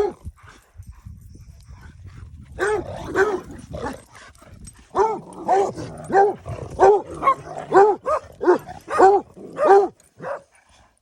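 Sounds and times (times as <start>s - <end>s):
dog barking: 2.6s - 3.4s, 5.0s - 10.5s.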